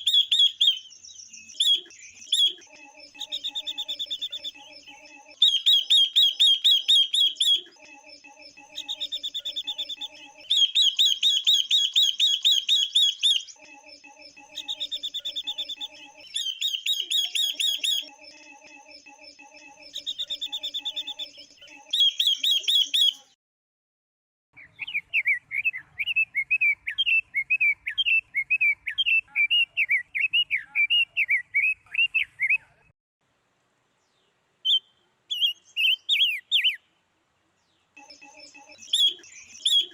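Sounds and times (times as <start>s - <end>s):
birds fast high trills: 0.0s - 23.4s, 38.0s - 39.9s
birds varied chirps: 0.0s - 23.4s, 34.0s - 39.9s.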